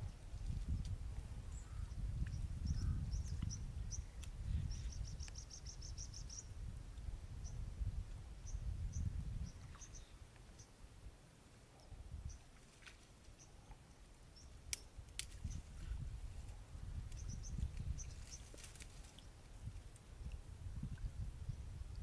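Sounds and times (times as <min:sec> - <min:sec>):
small birds chirping: 0:01.5 - 0:06.5, 0:08.4 - 0:10.8, 0:17.1 - 0:18.6.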